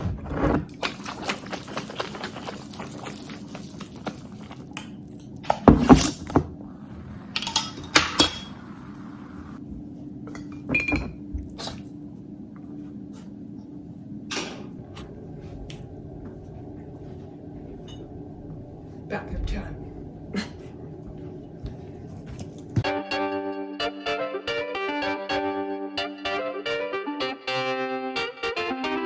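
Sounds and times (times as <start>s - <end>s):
glassware and dishes clinking: 7.2s - 9.0s, 10.3s - 11.2s, 17.8s - 18.1s.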